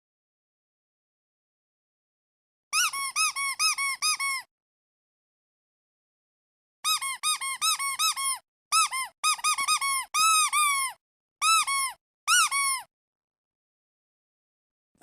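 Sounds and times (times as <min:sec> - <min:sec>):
squeaky duck toy squeaking: 0:02.7 - 0:04.5, 0:06.8 - 0:12.9.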